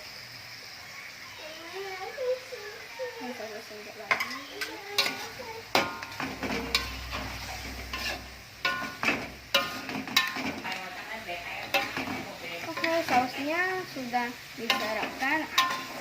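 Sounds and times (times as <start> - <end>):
sauce sizzling: 0.0 - 16.0
spatula scraping and knocking pan: 4.1 - 16.0.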